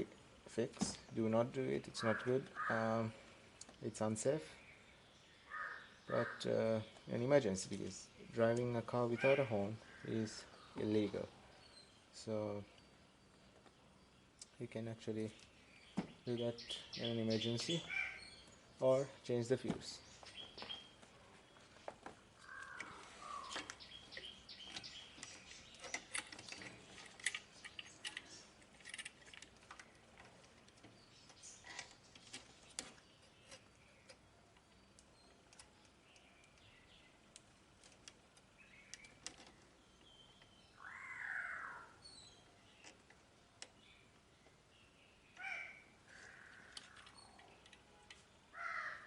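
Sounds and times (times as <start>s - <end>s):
faint bird calls: 1.7s - 3.5s, 4.4s - 7.9s, 9.0s - 14.7s, 15.3s - 19.2s, 22.4s - 28.6s, 38.6s - 43.0s, 44.7s - 49.0s.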